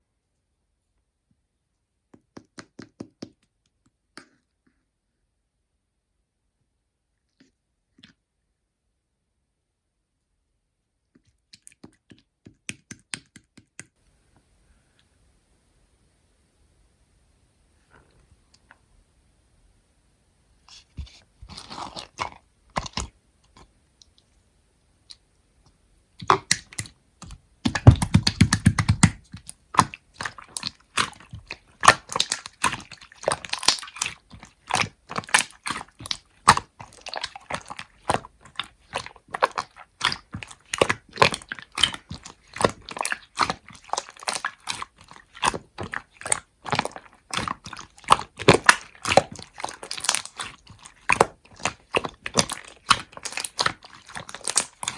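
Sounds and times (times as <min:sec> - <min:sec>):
slime squelch: 0:20.6 - 0:24.3, 0:26.2 - 0:54.9
slime sticky pops and clicks: 0:26.2 - 0:30.0.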